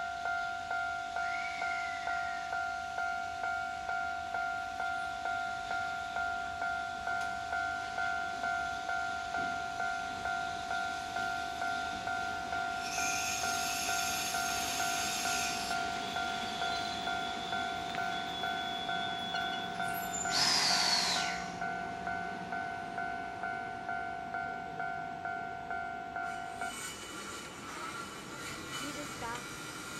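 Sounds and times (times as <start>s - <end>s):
freight train running: 0.0s - 29.9s
warning bell ringing: 1.7s - 26.6s
high squeal: 12.7s - 21.6s.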